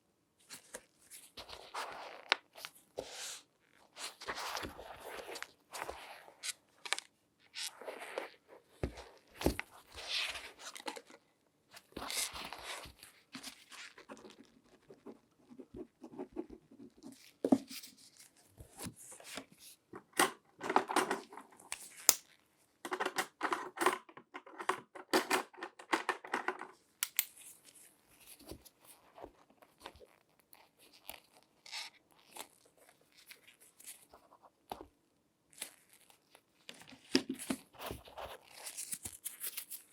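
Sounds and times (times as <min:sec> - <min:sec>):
gloved hands rustling objects: 0:00.5 - 0:23.4, 0:35.5 - 0:39.9.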